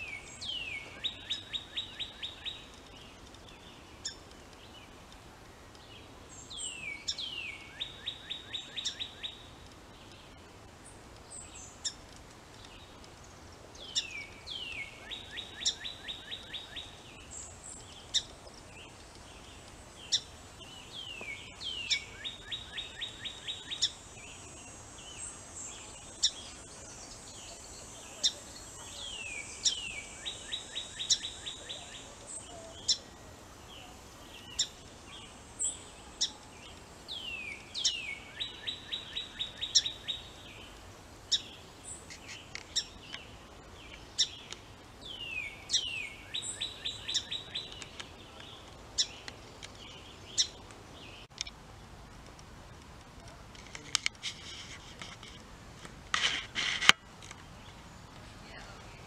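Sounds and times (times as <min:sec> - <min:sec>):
songbird song with trill: 0:00.0 - 0:51.6.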